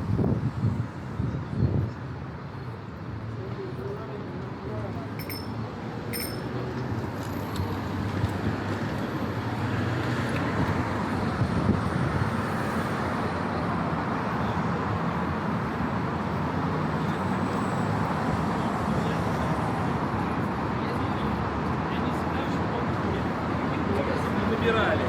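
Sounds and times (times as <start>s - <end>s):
city road traffic: 0.0s - 25.0s
short high clink: 5.2s - 6.6s.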